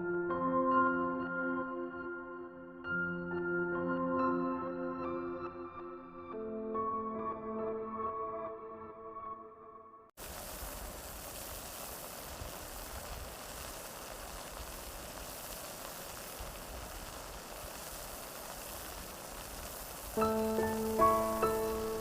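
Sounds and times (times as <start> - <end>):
steady rain hiss: 10.2 - 22.0.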